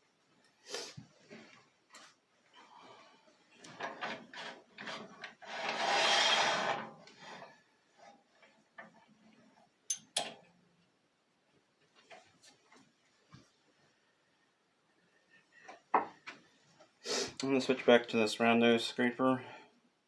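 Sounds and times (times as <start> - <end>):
tool scraping wood: 3.7 - 8.1.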